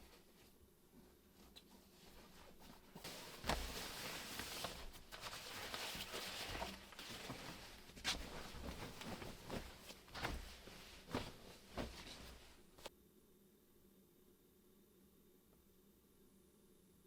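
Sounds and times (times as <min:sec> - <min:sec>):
rustling handling noise: 0:00.0 - 0:12.9.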